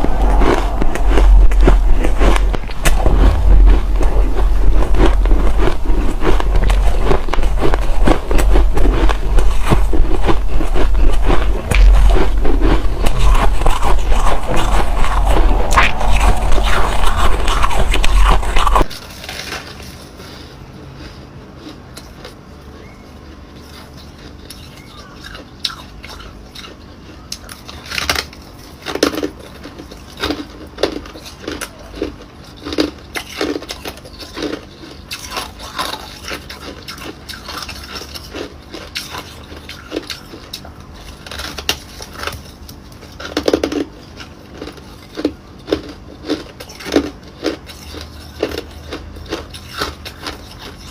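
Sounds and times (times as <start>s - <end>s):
low rumble: 0.0s - 18.9s
ice being chewed: 0.0s - 50.9s.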